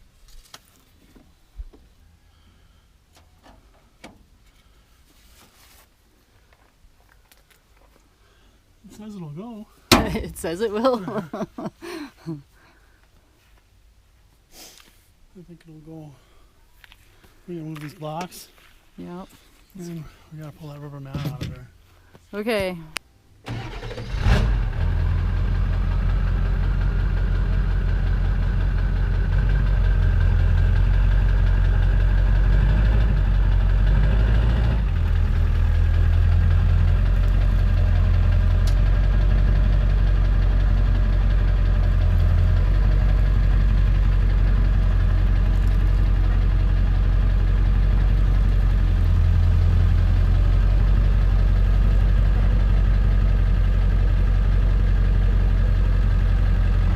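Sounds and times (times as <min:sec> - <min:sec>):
pickup truck engine starting: 0:23.4 - 0:56.9
truck engine idling: 0:23.5 - 0:56.9.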